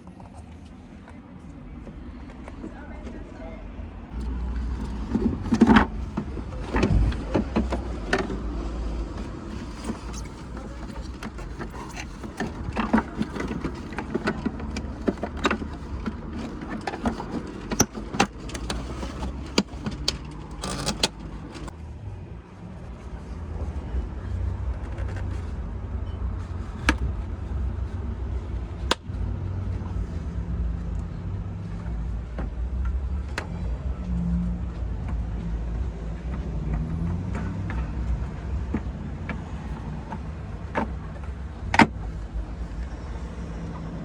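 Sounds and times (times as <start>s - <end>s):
hands clicking and knocking on plastic: 4.2s - 21.7s, 28.8s - 29.2s.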